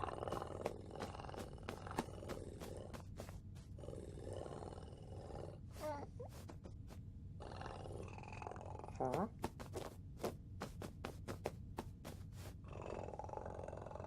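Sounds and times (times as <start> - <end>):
person imitating cat purr: 0.0 - 6.1, 7.4 - 9.5, 12.7 - 14.0.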